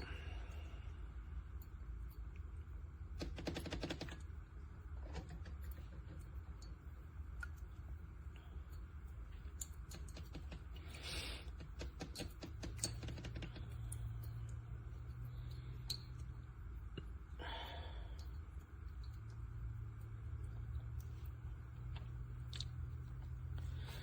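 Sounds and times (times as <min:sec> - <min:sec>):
small clicks: 0:03.2 - 0:06.8, 0:08.7 - 0:17.1.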